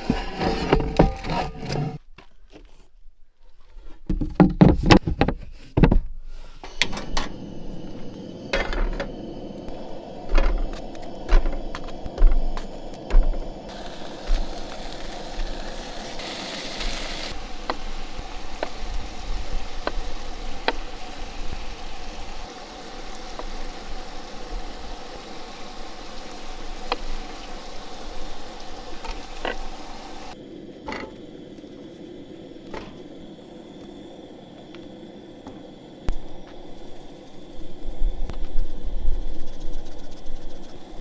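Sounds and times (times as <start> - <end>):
food sizzling in frying pan: 6.7 - 30.4.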